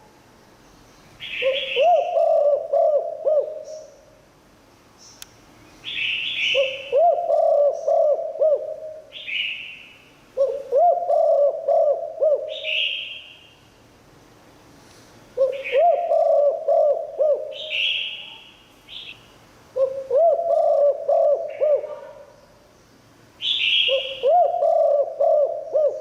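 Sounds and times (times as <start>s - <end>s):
dove cooing: 1.3s - 4.0s, 6.5s - 9.2s, 10.4s - 13.1s, 15.4s - 18.2s, 19.8s - 22.3s, 23.7s - 26.0s.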